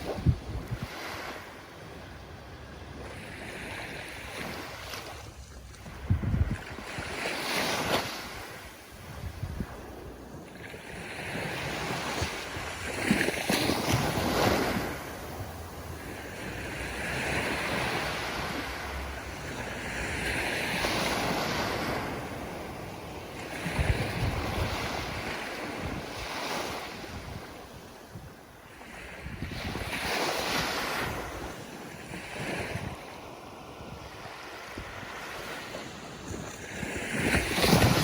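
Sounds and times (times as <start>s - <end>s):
ocean surf breaking: 0.0s - 27.2s.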